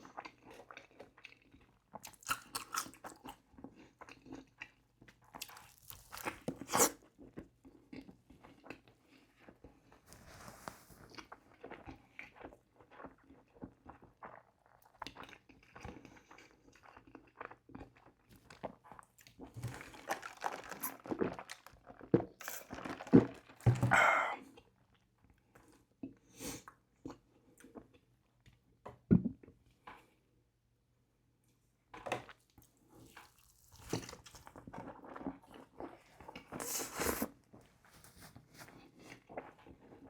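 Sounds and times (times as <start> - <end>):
person chewing food: 0.0 - 25.0.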